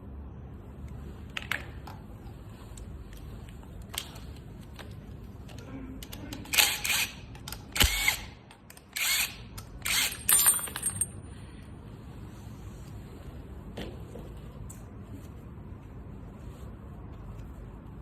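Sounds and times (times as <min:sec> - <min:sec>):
tools clicking and rattling: 0:06.0 - 0:11.2.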